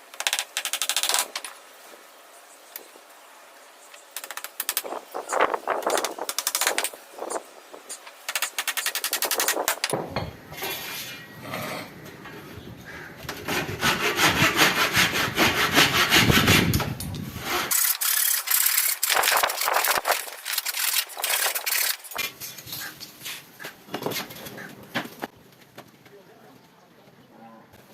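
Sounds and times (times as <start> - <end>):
saw cutting wood: 13.3 - 22.3.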